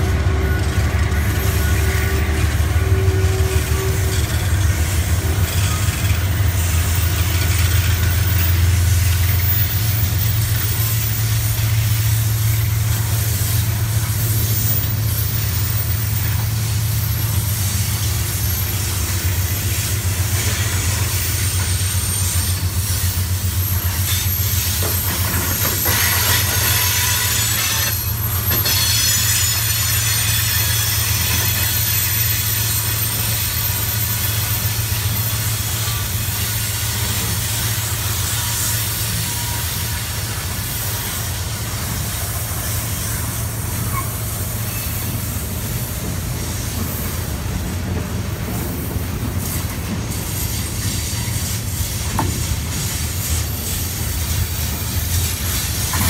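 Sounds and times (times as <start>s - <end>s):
freight train cars rolling: 0.0s - 56.0s
train wheels squealing: 0.0s - 56.0s.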